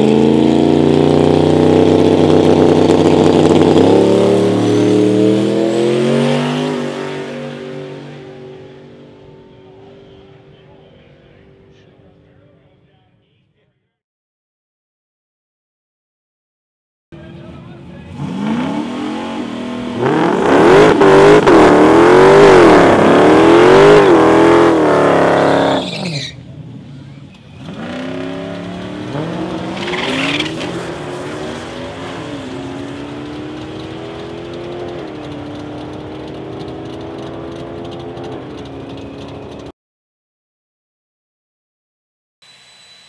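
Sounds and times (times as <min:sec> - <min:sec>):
car engine revving hard: 0:00.0 - 0:10.2, 0:18.0 - 0:26.1, 0:27.6 - 0:39.7
tyre squeal: 0:25.5 - 0:26.4, 0:29.0 - 0:31.6.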